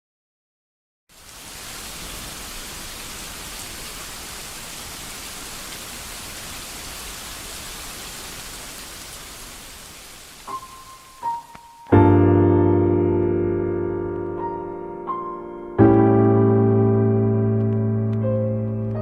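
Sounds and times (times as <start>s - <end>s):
steady rain hiss: 1.1s - 12.0s, 13.9s - 19.0s
faint raindrop ticks: 10.4s - 12.0s, 14.1s - 14.4s, 17.6s - 19.0s.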